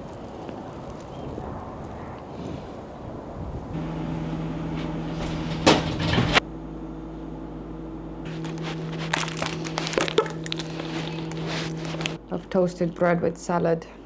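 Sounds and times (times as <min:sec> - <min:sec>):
steady hum of several tones: 0:03.7 - 0:13.4.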